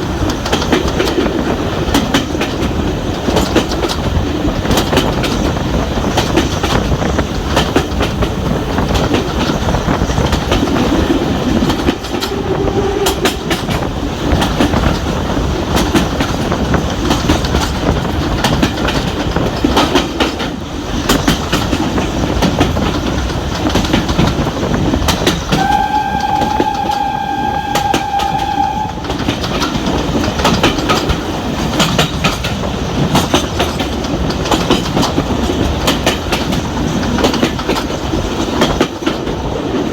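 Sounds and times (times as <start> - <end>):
railway carriage rumble: 0.0 - 39.9
wheels clicking over rail joints: 0.0 - 39.9
train whistle blast: 25.5 - 29.4.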